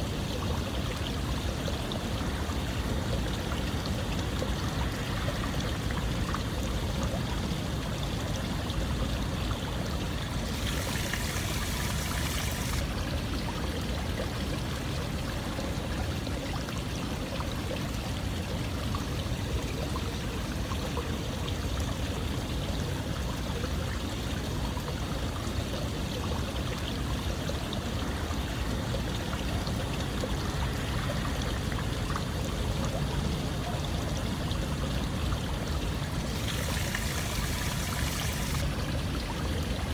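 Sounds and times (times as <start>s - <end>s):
water rushing: 8.4s - 13.5s, 35.1s - 39.9s.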